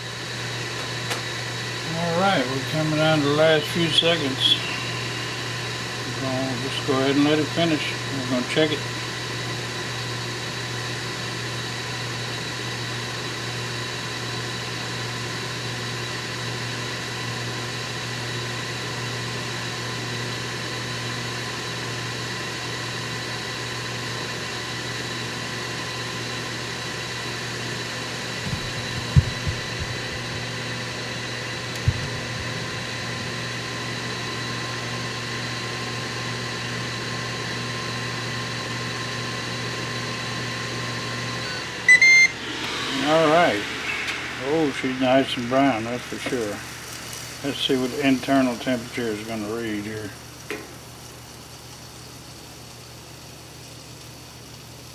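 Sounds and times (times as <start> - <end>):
grill fan humming: 0.0 - 54.9
dull thumps: 28.5 - 30.5.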